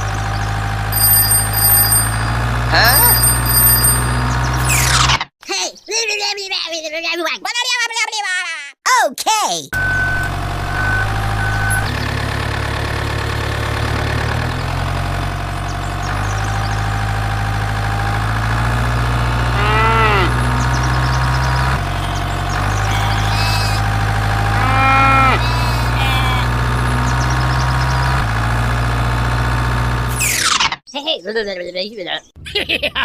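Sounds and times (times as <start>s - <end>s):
toy engine rumble effect: 0.0s - 5.1s, 10.2s - 30.6s
recorded cow moo: 19.5s - 20.5s, 24.4s - 26.2s.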